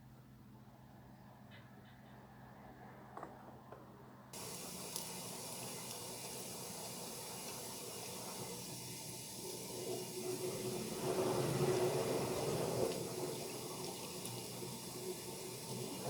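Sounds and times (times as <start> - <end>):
water running into sink: 4.4 - 16.0
water tap turned on: 4.4 - 16.0.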